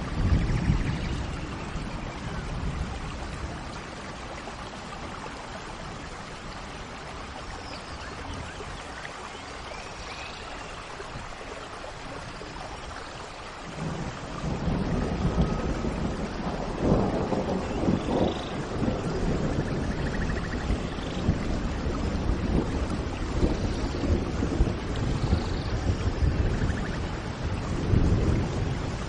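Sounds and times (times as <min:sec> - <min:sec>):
low rumble of thunder: 0:00.0 - 0:08.8, 0:13.7 - 0:29.0
steady rain hiss: 0:00.0 - 0:29.0.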